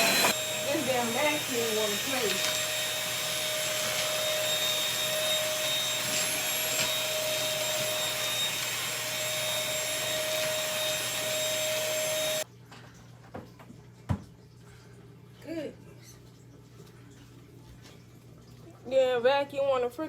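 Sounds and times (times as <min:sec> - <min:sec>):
vacuum cleaner running: 0:00.0 - 0:12.5.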